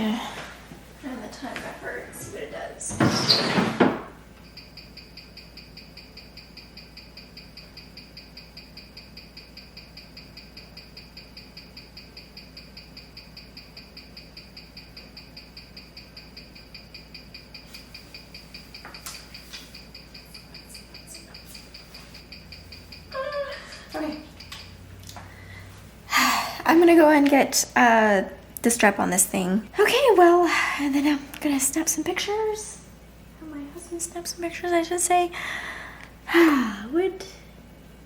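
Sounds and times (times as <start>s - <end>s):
mechanical watch ticking: 4.4s - 25.1s.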